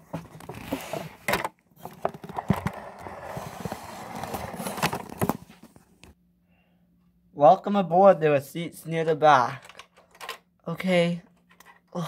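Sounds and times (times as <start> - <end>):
plastic toys clicking and scraping: 9.6 - 10.4.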